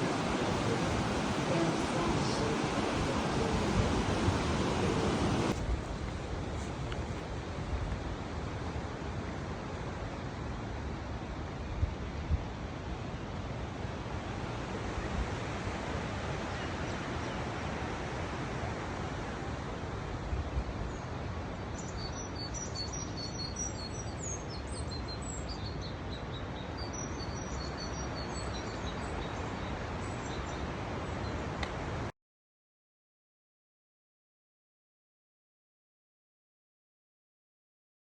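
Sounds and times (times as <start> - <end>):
steady outdoor rushing noise: 0.0 - 11.8
small birds chirping: 21.7 - 31.5.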